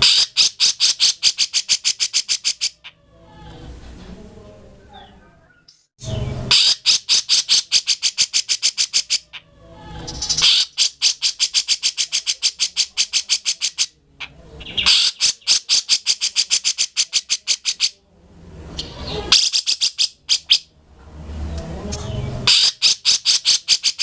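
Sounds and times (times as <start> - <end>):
bulbul singing rapid sharp notes: 0.0 - 2.8, 6.2 - 9.4, 10.1 - 14.0, 14.6 - 18.0, 22.0 - 24.0.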